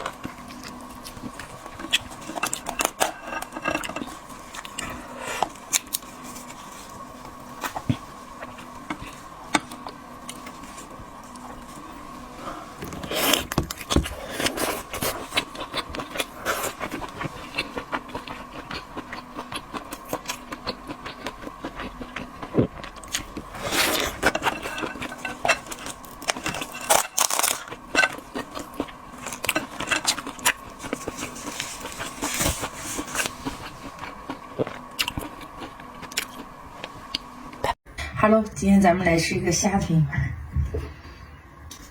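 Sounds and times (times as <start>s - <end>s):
crunching and chewing seafood: 0.0s - 37.8s
faint steady hum: 0.0s - 41.9s.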